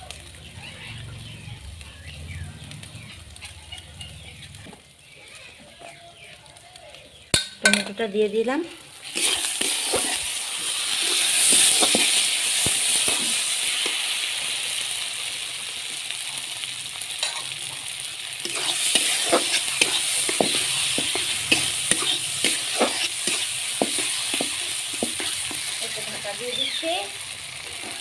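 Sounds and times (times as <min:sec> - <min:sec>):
tomatoes sizzling in a wok: 0:00.0 - 0:28.0
metal spatula scraping a pan: 0:09.0 - 0:14.1, 0:17.2 - 0:17.6, 0:18.4 - 0:26.8, 0:27.8 - 0:28.0.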